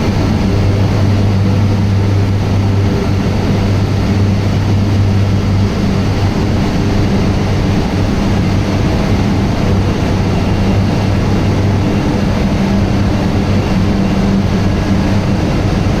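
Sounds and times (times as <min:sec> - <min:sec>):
industrial machinery running: 0:00.0 - 0:16.0.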